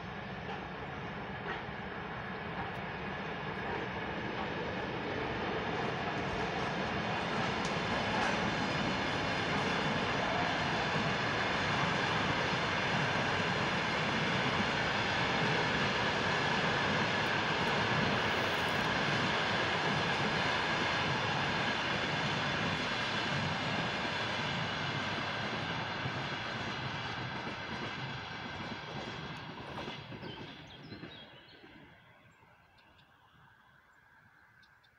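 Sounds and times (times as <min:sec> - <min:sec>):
locomotive high whine: 0:00.0 - 0:27.0
train rumbling past: 0:00.0 - 0:34.6.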